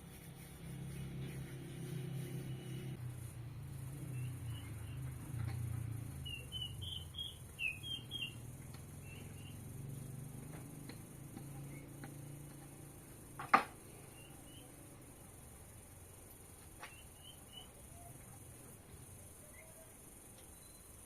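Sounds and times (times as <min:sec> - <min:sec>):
small bird chirping: 0:03.9 - 0:10.0, 0:10.8 - 0:12.4, 0:13.8 - 0:15.0, 0:16.8 - 0:18.2, 0:19.4 - 0:21.0.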